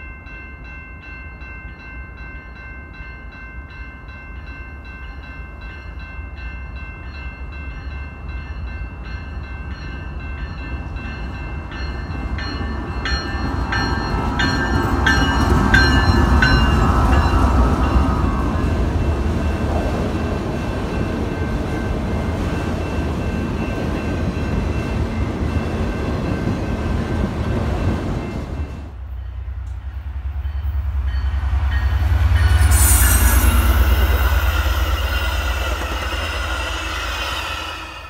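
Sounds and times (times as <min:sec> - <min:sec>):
commuter train passing: 0:00.0 - 0:38.0
freight train wheels rumbling: 0:04.4 - 0:38.0
high squealing: 0:32.4 - 0:38.0.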